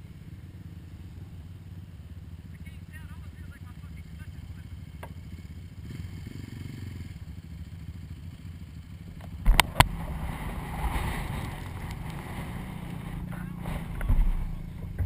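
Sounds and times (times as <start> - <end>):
atv engine rumbling: 0.0 - 15.0
rushing noise: 9.4 - 15.0.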